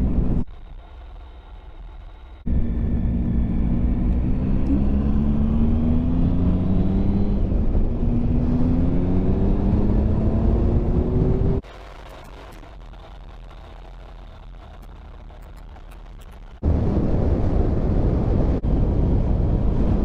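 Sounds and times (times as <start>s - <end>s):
wind and road rumble: 0.0s - 20.0s
motorcycle engine accelerating: 2.4s - 11.7s.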